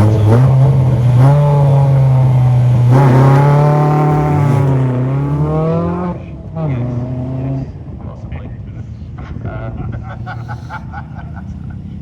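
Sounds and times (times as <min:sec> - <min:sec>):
second engine passing: 0:00.0 - 0:08.0
car engine at high revs: 0:00.0 - 0:08.1.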